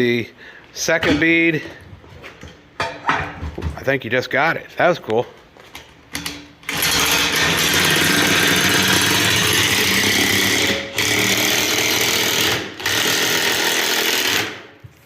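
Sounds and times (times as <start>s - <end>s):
pneumatic tool buzzing: 6.6s - 14.7s.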